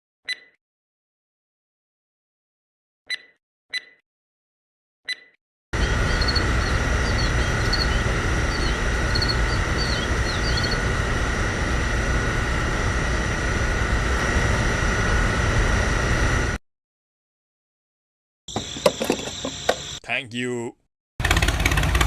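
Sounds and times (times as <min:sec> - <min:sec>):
small bird-like chirps: 0:00.3 - 0:00.6, 0:03.1 - 0:04.0, 0:05.1 - 0:10.8
machine running with low rumble: 0:05.8 - 0:16.6, 0:21.2 - 0:22.0.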